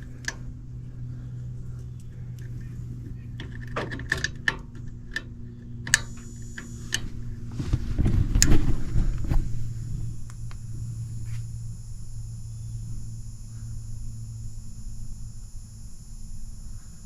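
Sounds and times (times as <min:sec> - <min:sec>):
tool and wire clicks: 0:00.0 - 0:00.6, 0:01.7 - 0:07.3
rumbling bumping handling noise: 0:00.0 - 0:16.9
faint high whine: 0:00.0 - 0:17.0
low electrical hum: 0:00.0 - 0:17.0.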